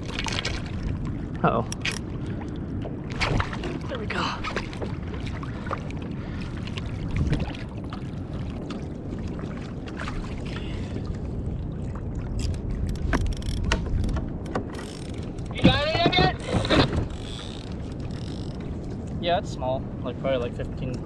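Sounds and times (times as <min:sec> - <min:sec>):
knocks and clicks on hull: 0:00.0 - 0:08.9, 0:12.4 - 0:19.2
water sloshing around kayak: 0:00.0 - 0:19.3.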